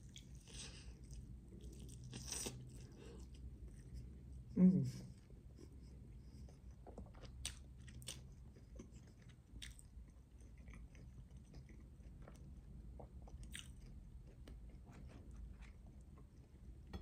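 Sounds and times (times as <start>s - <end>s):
wet chewing sounds: 0.0s - 4.5s, 5.6s - 16.8s.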